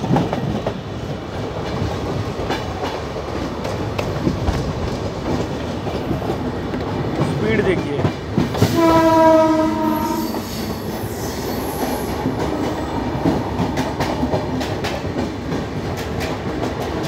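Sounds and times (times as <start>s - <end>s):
train wheels rumbling and clattering: 0.0s - 17.0s
train horn: 8.6s - 10.8s
high wheel squeal: 9.9s - 12.2s.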